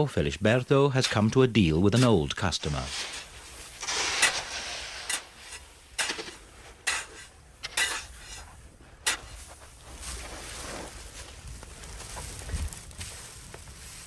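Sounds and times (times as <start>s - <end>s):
gritty crunching hiss: 0.0s - 14.0s
shovels scraping salt: 1.0s - 11.1s.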